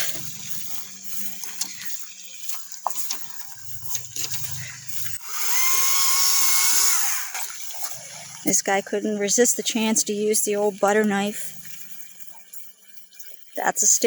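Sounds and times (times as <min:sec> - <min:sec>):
electric chainsaw whine: 0:00.0 - 0:08.5.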